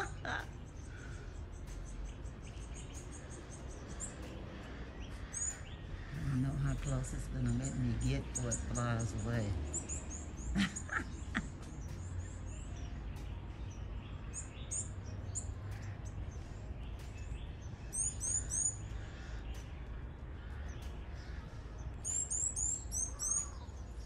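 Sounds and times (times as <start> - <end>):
small birds chirping: 0.0 - 24.0
steady low rumble: 0.0 - 24.0.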